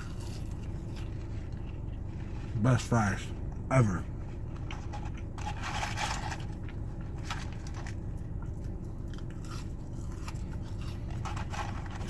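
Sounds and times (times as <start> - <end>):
steady low hum: 0.0 - 12.0
chewing food: 4.5 - 12.0.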